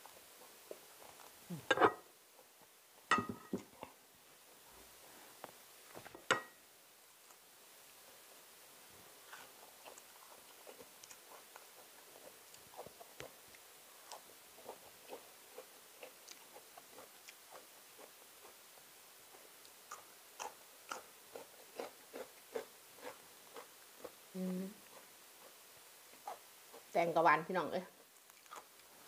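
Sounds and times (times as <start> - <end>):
chewing crunchy vegetable: 9.2 - 27.0, 27.9 - 29.0.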